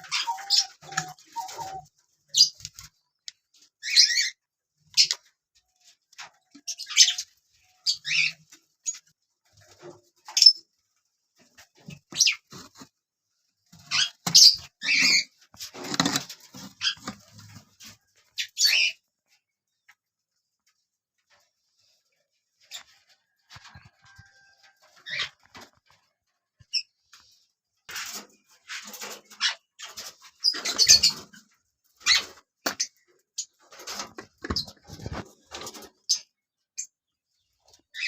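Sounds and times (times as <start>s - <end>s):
parrots squawking: 0.0s - 1.8s.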